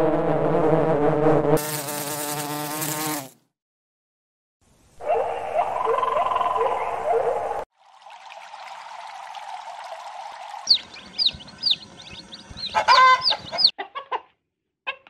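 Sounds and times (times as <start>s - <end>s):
honeybees buzzing: 1.6s - 3.3s, 10.7s - 13.7s.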